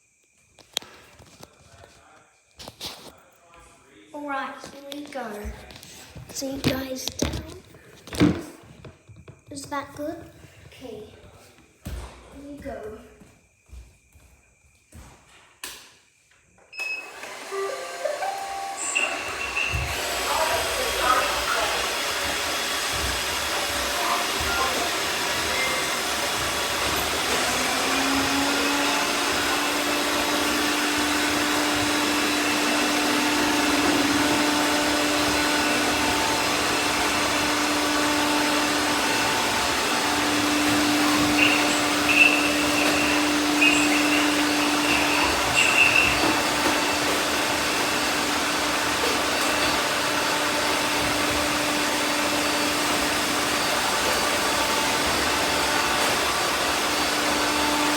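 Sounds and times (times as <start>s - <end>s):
thin whines: 16.7s - 57.9s
robot vacuums whirring: 16.8s - 57.9s
short chirps and knocks: 41.0s - 46.4s.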